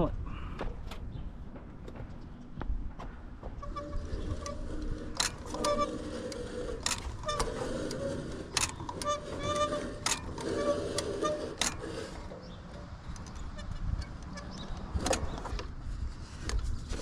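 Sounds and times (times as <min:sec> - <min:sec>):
short pitched squeaks: 0:03.6 - 0:15.6.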